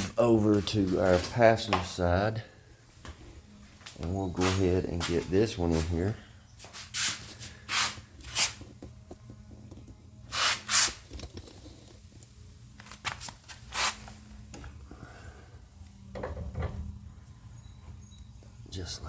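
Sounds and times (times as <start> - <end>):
steady low hum: 11.0 - 19.0.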